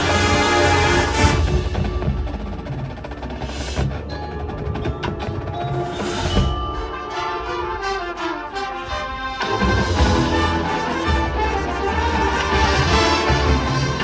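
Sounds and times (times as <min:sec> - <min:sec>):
mallet percussion ringing tones: 0:01.6 - 0:08.4.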